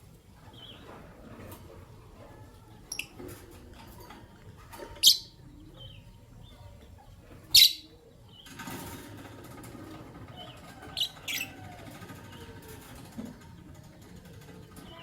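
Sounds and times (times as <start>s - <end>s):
lovebirds shrill calls: 5.0s - 5.4s, 7.5s - 7.9s, 10.9s - 11.6s.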